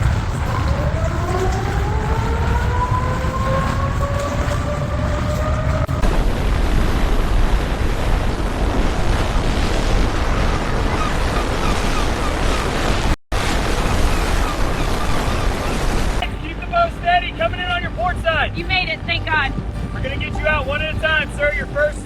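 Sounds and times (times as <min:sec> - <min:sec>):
rising siren wail: 0:00.0 - 0:06.6
churning water rushing: 0:00.0 - 0:22.0
wind buffeting microphone: 0:00.0 - 0:22.0.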